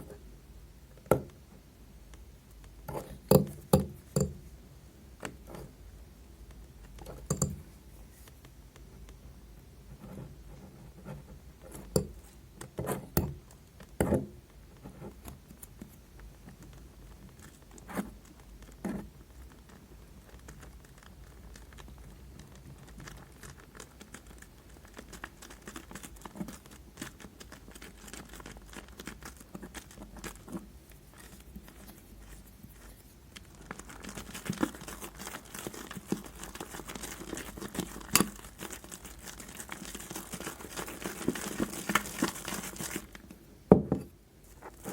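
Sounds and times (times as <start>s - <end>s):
slime crackling and popping: 16.6s - 43.3s.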